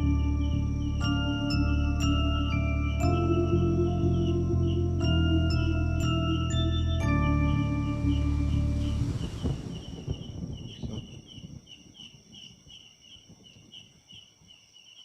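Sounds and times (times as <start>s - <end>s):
high-pitched whine: 0.0s - 11.0s
night insects chirping: 0.0s - 15.0s
low crackling rustle: 7.0s - 12.1s.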